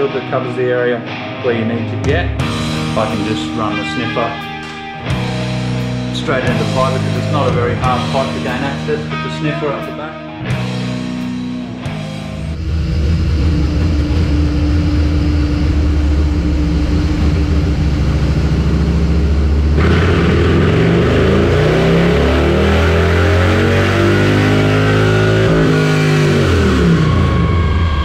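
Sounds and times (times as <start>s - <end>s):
motorcycle engine revving on dyno: 12.5s - 28.0s.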